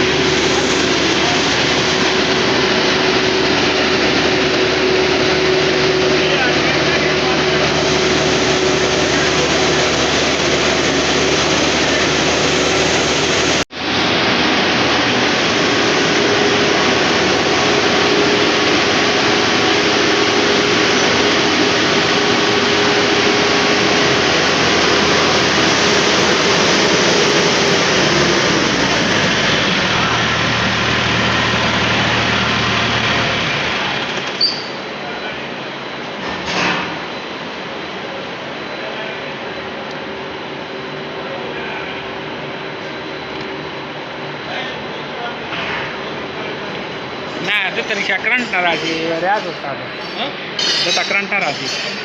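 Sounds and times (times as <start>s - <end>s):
machine engine running: 0.0s - 35.2s.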